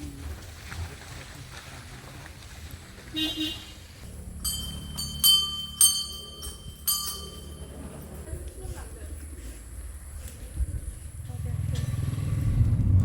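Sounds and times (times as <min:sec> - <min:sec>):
small brass hand bell ringing: 0:04.2 - 0:08.3.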